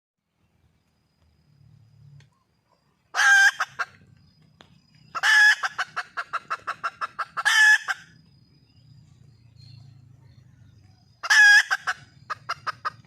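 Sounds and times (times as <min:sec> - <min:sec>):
hen calling and clucking: 0:03.1 - 0:04.0, 0:05.0 - 0:08.2, 0:10.6 - 0:13.0.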